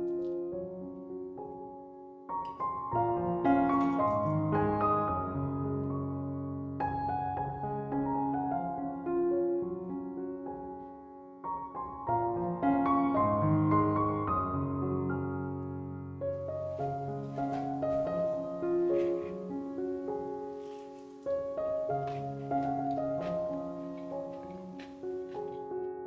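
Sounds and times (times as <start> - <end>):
gentle solo piano: 0.0 - 26.0
faint hiss: 16.3 - 26.0.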